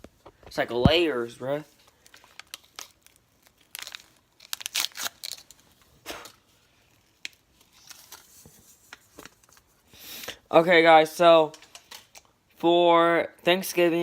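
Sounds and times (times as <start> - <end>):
packaging crinkling and tearing: 1.8 - 9.7.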